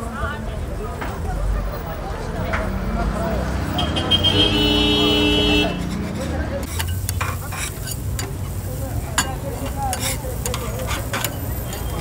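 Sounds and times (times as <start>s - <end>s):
burger meat sizzling: 6.7s - 12.0s
sharp clicks and scrapes: 9.2s - 11.9s.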